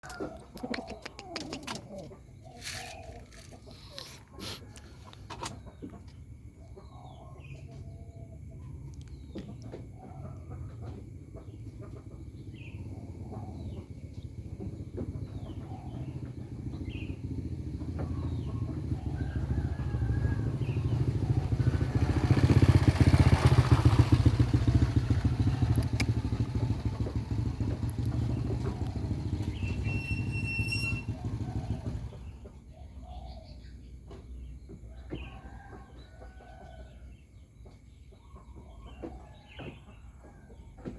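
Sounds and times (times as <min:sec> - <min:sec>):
vehicle engine passing by: 0:00.0 - 0:04.6, 0:07.4 - 0:33.4
bird chirps: 0:00.1 - 0:04.5, 0:24.2 - 0:35.7.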